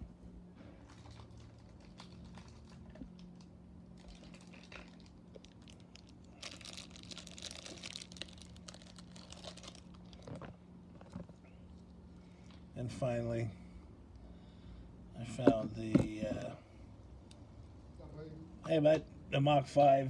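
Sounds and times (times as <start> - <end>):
faint steady hum: 0.0 - 20.0
plastic packaging crinkling: 0.8 - 11.4.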